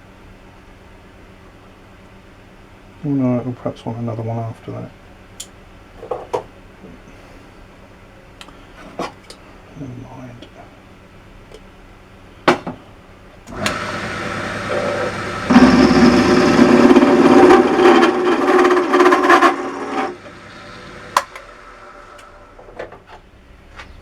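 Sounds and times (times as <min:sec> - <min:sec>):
click: 0:13.5 - 0:13.8
cutter cutting steel: 0:13.5 - 0:22.6
machine motor running: 0:13.5 - 0:22.8.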